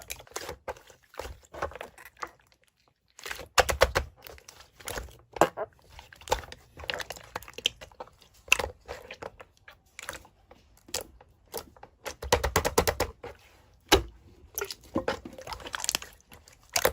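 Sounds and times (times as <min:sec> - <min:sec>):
clicking and crinkling handling noises: 0:00.0 - 0:16.9.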